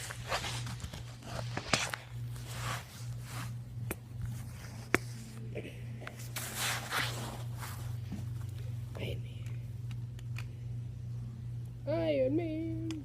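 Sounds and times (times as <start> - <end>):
rustling handling noise: 0.0 - 8.9
steady low hum: 0.0 - 13.0.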